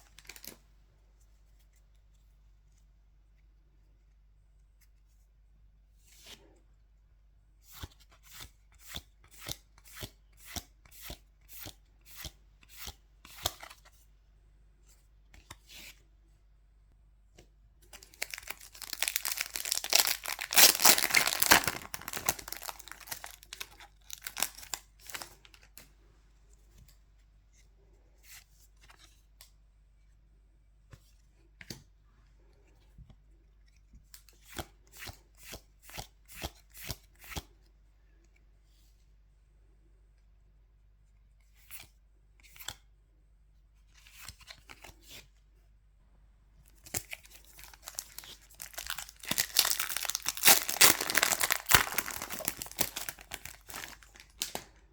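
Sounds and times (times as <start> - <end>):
foil wrapper ripping open: 0.2 - 0.5, 18.0 - 25.4, 46.9 - 54.6.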